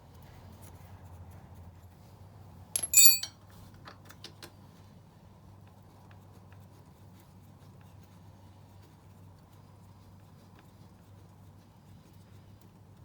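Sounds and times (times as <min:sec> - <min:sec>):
metal clinking against metal: 0:02.8 - 0:03.3.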